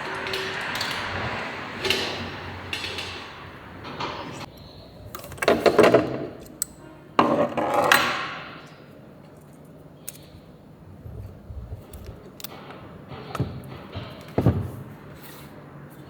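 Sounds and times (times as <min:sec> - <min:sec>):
metal tools clattering: 0:00.0 - 0:04.5.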